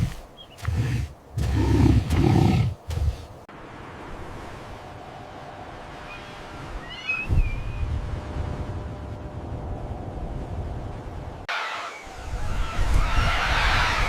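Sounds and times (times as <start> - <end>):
bird chirping: 0.0 - 3.4
low wind rumble: 0.0 - 14.0.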